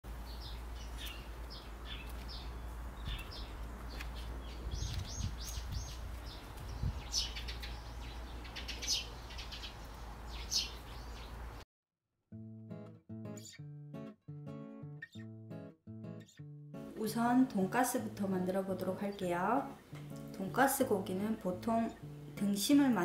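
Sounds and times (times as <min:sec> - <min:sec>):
birds chirping: 0:00.1 - 0:11.6
acoustic guitar music: 0:12.3 - 0:23.0.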